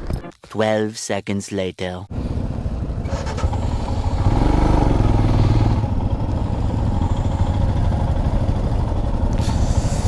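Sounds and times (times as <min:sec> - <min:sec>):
motorcycle engine running: 0:02.1 - 0:10.0.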